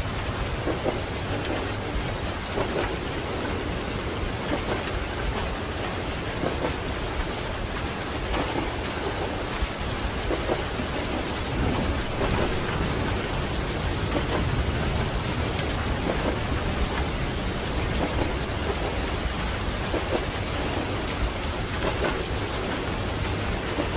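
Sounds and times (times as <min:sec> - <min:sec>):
moving train rumble: 0:00.0 - 0:23.9
steady rain: 0:00.0 - 0:23.9
train wheels knocking: 0:00.6 - 0:07.5, 0:10.1 - 0:21.1, 0:21.7 - 0:22.9.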